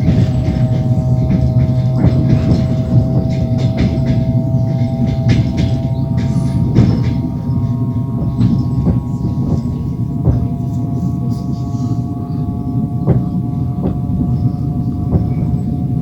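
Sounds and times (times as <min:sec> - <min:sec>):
clicks over rail joints: 0:00.0 - 0:10.9
metallic ringing tones: 0:00.0 - 0:16.0
train wheels rumbling on rails: 0:00.0 - 0:16.0.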